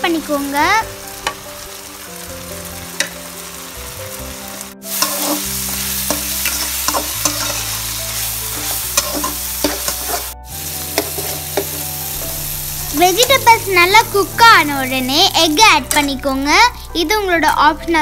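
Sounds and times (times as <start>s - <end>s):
vegetables sizzling in oil: 0.0s - 17.5s
spatula stirring and scraping: 5.0s - 11.9s.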